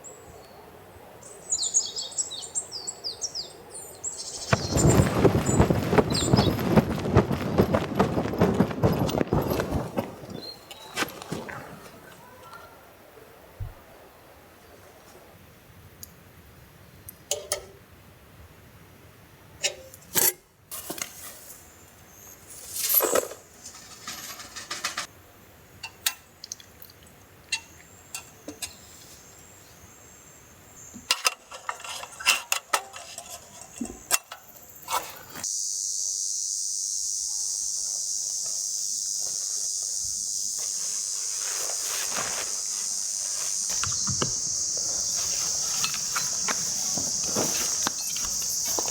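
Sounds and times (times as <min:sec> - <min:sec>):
high-pitched insect chorus: 0:04.1 - 0:12.8, 0:33.5 - 0:48.9
clicks and knocks of gear handling: 0:05.3 - 0:11.7.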